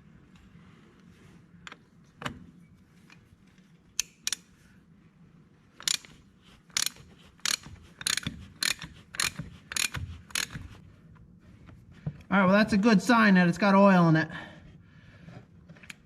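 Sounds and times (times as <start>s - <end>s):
ratchet wrench clicking: 5.8s - 10.7s.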